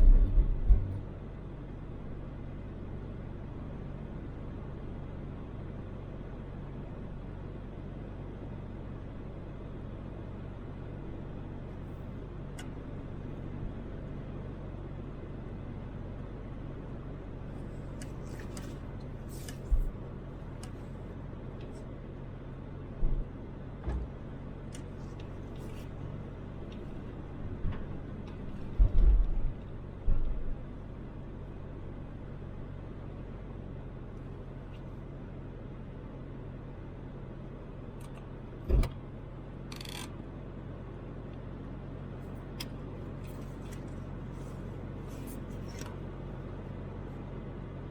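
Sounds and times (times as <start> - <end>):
loud low thumps: 0.0 - 1.1
road noise: 0.0 - 6.6, 9.2 - 47.9
car engine hum: 0.0 - 47.9.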